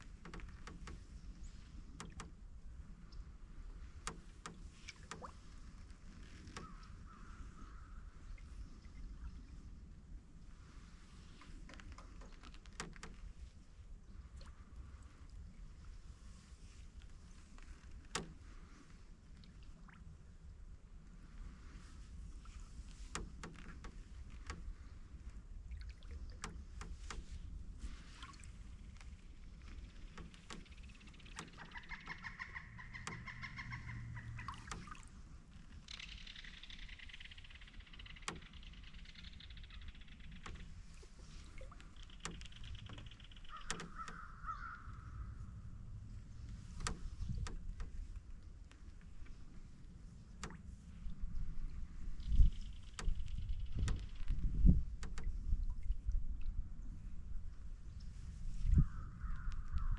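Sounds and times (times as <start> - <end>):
low steady rumble: 0.0 - 59.9
sharp ticks and light knocks: 0.2 - 1.0, 2.0 - 2.4, 4.0 - 5.4, 18.0 - 18.4, 23.0 - 24.7, 26.1 - 27.4, 28.8 - 35.0, 35.9 - 44.3, 46.5 - 49.4, 50.4 - 50.6, 52.2 - 55.3
water dripping off paddle: 3.8 - 9.2, 22.4 - 45.0, 46.4 - 49.4, 50.3 - 56.6.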